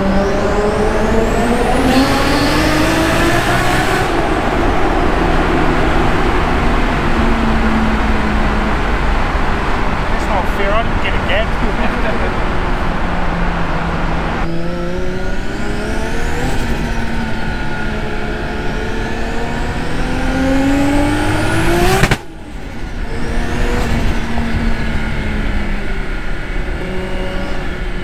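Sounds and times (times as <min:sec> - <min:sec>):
car engine pulling hard: 0:00.0 - 0:28.0.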